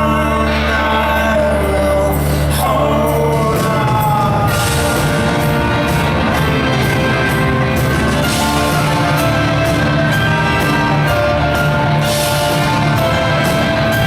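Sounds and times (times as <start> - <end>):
rock band playing: 0.0 - 14.0
drums striking: 3.3 - 14.0.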